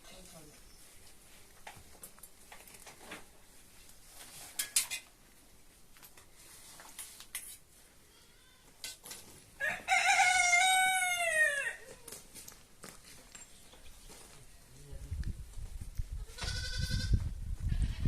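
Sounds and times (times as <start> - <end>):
rooster crowing: 9.6 - 11.9.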